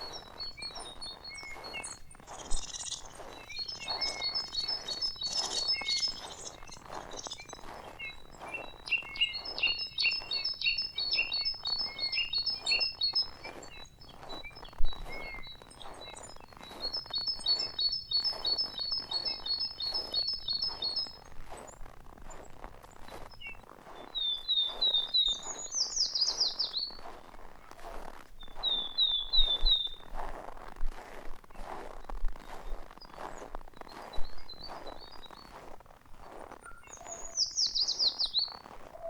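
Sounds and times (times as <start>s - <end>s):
small songbirds singing: 0.0s - 30.2s, 31.5s - 39.0s
footsteps crunching in snow: 0.0s - 39.0s.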